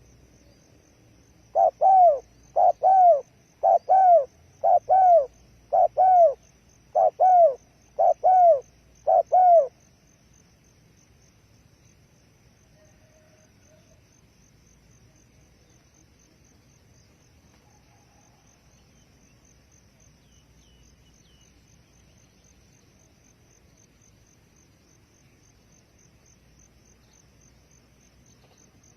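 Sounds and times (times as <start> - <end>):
insects chirring: 0.0 - 28.9
faint bird chirps: 1.5 - 9.8, 20.2 - 23.2, 28.2 - 28.9.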